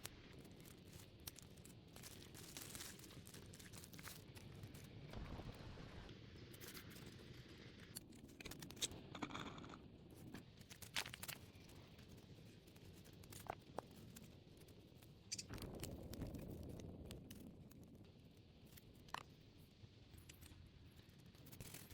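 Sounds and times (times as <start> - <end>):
small clicks and snaps: 0.0 - 5.1, 7.8 - 21.9.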